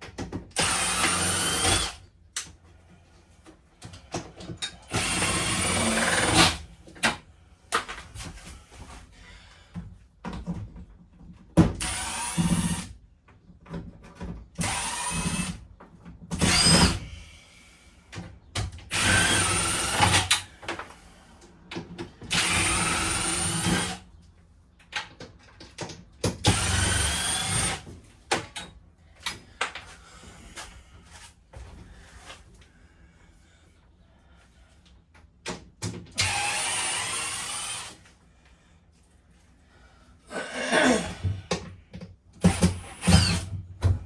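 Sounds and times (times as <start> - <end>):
power drill backing out screws: 18.9 - 20.6, 22.3 - 24.0, 36.2 - 38.0, 42.4 - 43.6.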